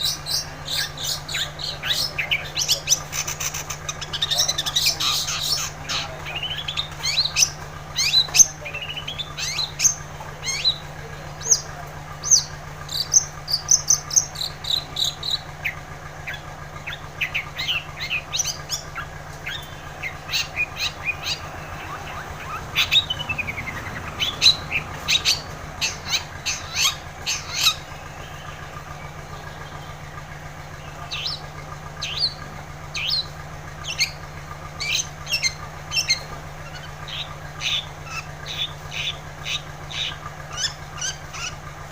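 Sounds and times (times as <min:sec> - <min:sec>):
shrike chirping and whistling: 0:00.0 - 0:10.9, 0:11.5 - 0:30.0, 0:30.8 - 0:34.2, 0:34.8 - 0:41.6
low hum: 0:05.5 - 0:37.6.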